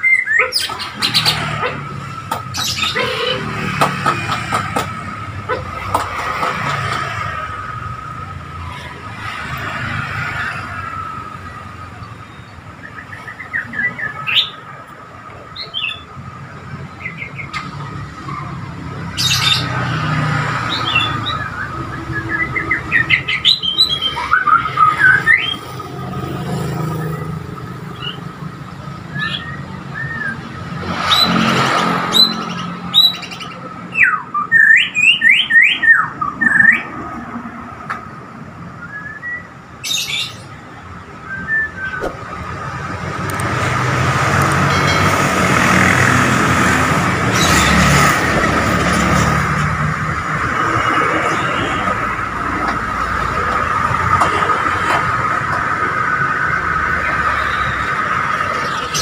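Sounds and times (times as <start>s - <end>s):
road traffic: 0.0s - 59.0s
vehicles passing: 0.0s - 59.0s
bird singing whistled phrases: 38.8s - 40.4s, 41.2s - 42.1s.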